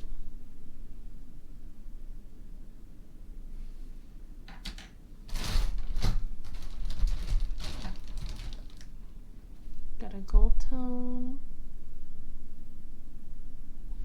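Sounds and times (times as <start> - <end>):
metal pins clicking and rustling: 4.5 - 9.2.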